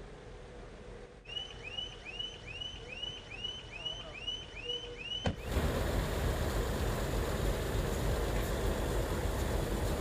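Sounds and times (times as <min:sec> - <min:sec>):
standing train rumbling: 0:05.4 - 0:10.0.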